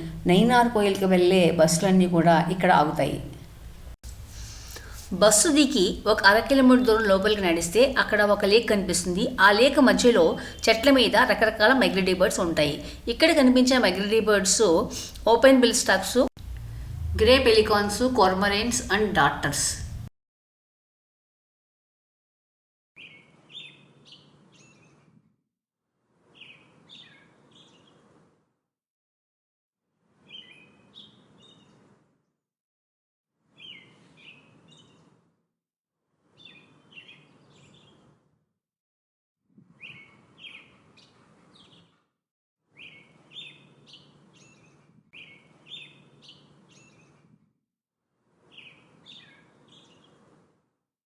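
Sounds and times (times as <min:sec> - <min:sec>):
faint low rumble: 0:16.4 - 0:20.1.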